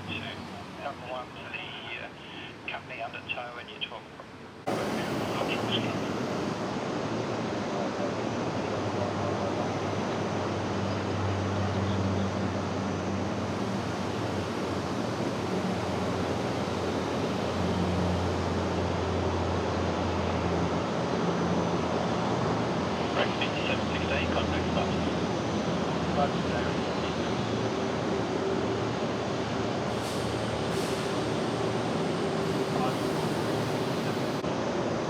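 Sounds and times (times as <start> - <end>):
jet engine rushing: 4.7 - 10.6.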